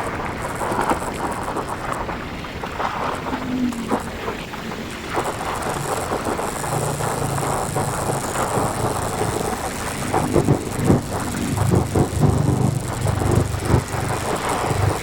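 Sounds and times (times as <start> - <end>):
wind buffeting microphone: 0.0 - 15.0
motorcycle engine running: 3.2 - 15.0.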